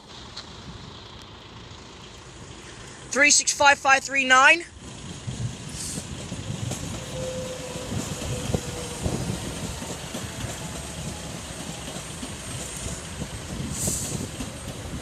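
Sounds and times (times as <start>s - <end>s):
train wheels rumbling on rail: 0.0s - 15.0s
train wheel knocks: 6.6s - 15.0s.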